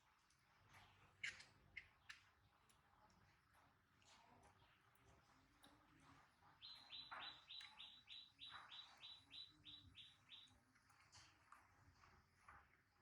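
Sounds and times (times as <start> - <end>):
bird chirping: 6.6 - 10.5.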